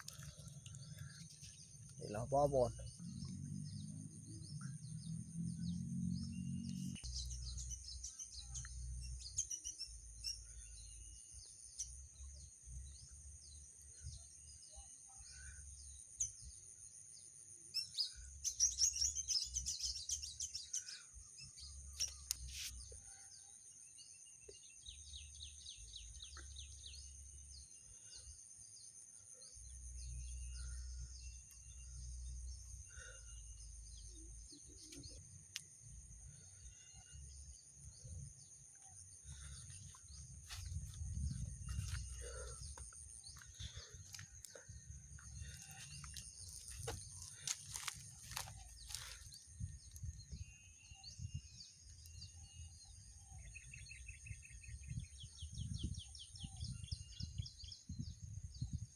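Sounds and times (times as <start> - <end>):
birds chirping: 0.0 - 23.1, 24.2 - 58.2
low rumble: 40.1 - 43.9.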